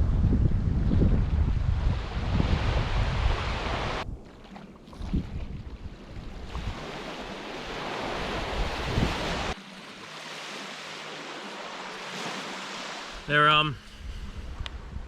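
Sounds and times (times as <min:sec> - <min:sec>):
wind buffeting microphone: 0:00.0 - 0:09.6, 0:13.2 - 0:15.0
waves washing on a beach: 0:01.6 - 0:15.0.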